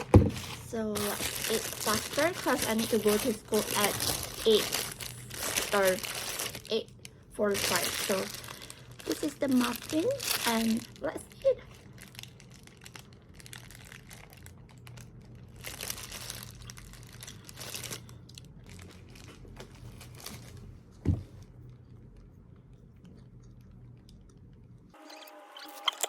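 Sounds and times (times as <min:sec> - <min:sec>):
paper wrapping crinkling: 0:00.0 - 0:20.7
steady low hum: 0:00.0 - 0:25.0.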